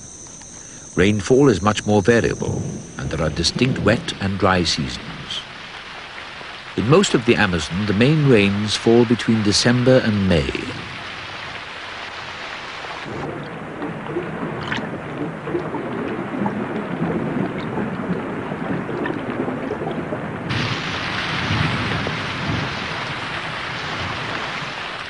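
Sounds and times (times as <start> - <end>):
heavy rain on water: 0.0 - 25.0
rumbles of thunder: 0.9 - 5.8, 13.0 - 25.0.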